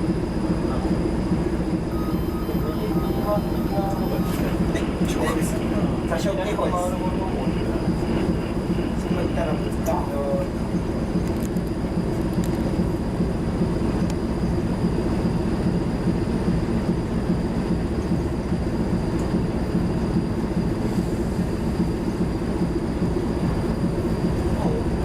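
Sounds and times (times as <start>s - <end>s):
diesel machinery rumbling: 0.0s - 25.0s
faint high whine: 1.9s - 11.5s.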